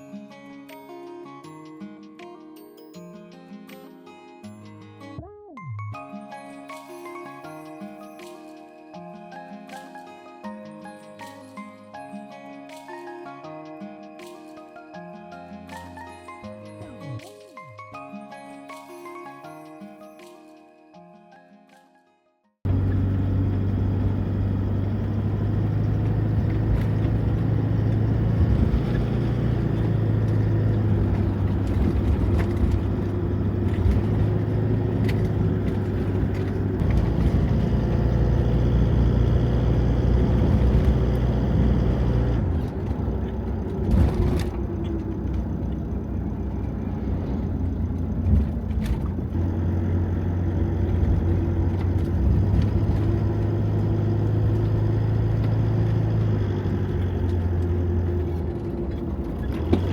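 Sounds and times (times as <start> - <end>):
engine and road noise: 22.6 - 59.9.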